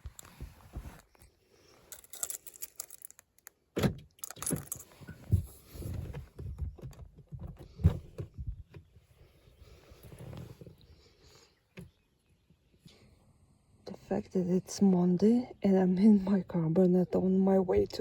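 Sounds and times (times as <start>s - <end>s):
rustles: 0.0s - 3.5s
light clinks: 1.9s - 3.2s.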